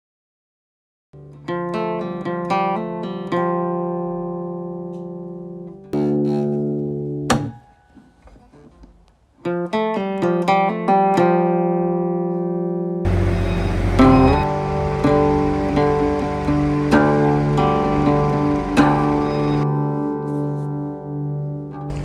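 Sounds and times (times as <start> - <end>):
acoustic guitar playing: 1.2 - 7.3, 13.1 - 19.8.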